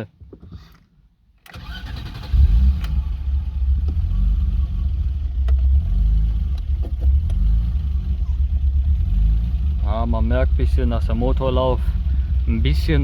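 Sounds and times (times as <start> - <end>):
car engine idling unevenly: 3.0 - 13.0.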